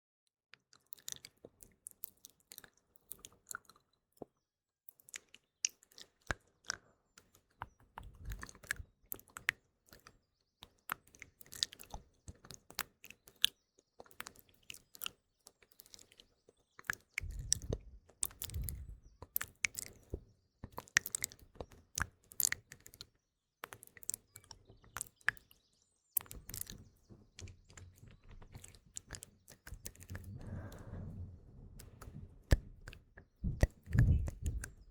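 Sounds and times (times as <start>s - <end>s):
wet mouth clicks and smacks: 5.0s - 13.5s, 16.8s - 25.6s, 26.2s - 26.8s, 27.7s - 31.0s, 31.8s - 34.9s
faint birdsong: 7.0s - 34.9s
soft breathing: 29.7s - 34.9s.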